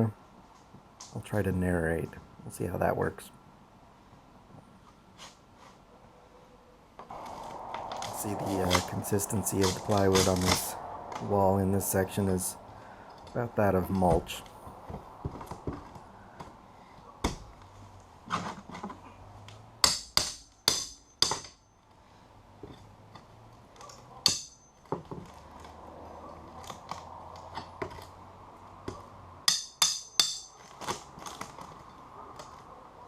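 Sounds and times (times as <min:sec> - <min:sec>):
hand tool chopping wood: 0:08.0 - 0:10.6, 0:17.2 - 0:17.6, 0:19.8 - 0:21.6.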